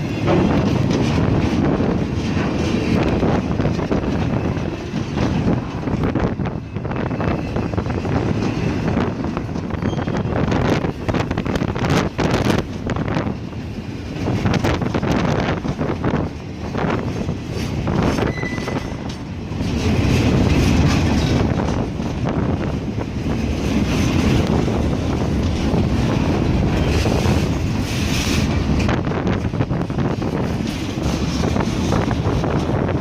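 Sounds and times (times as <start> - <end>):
train rumble: 0.0 - 33.0
train wheels clacking: 0.0 - 33.0.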